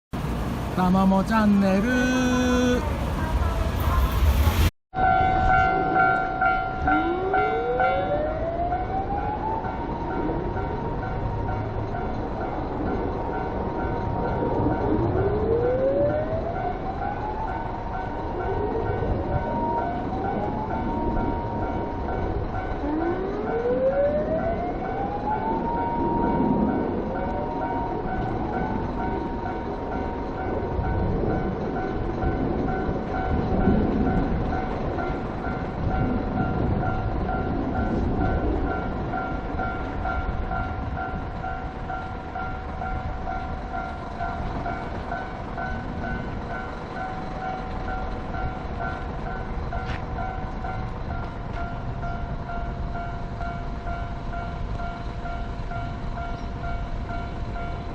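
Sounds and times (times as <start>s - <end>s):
electric train rumbling past: 0.2s - 57.9s
fire engine sirens wailing: 0.2s - 57.9s
level-crossing alarm ringing: 5.0s - 57.9s.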